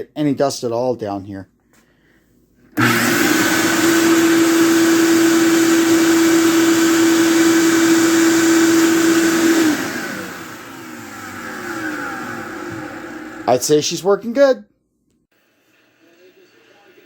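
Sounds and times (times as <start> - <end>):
vacuum motor winding down: 2.8 - 13.7
shop vacuum running with whine: 2.8 - 13.8.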